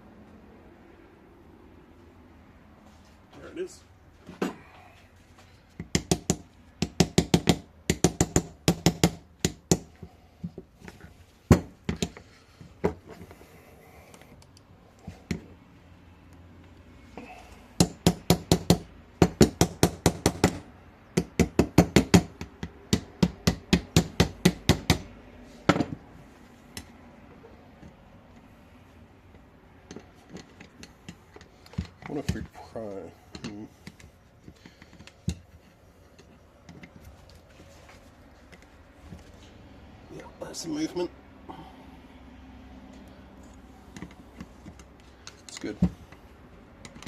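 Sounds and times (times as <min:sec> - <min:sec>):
hammer tapping on metal: 0:05.8 - 0:10.0, 0:17.8 - 0:25.1.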